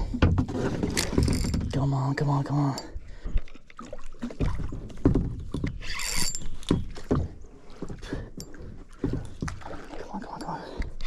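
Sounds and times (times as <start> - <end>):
fishing rod handling knocks and clicks: 0.0 - 2.0, 4.4 - 9.6.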